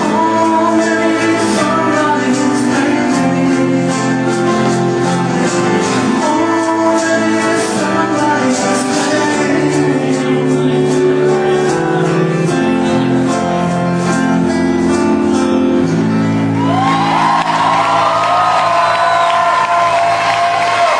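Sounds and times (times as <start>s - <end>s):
person singing: 0.0s - 14.2s
live rock band playing: 0.0s - 20.9s
crowd whooping and cheering: 16.4s - 20.9s.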